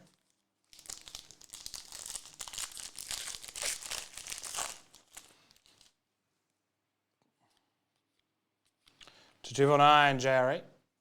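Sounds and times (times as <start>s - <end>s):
plastic wrapper crinkling: 0.0s - 6.0s.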